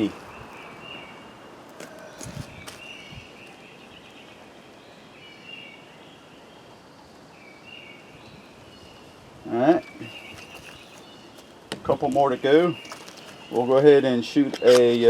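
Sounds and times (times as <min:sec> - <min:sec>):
steady hiss of noise: 0:00.0 - 0:15.0
high chirping calls: 0:07.4 - 0:15.0.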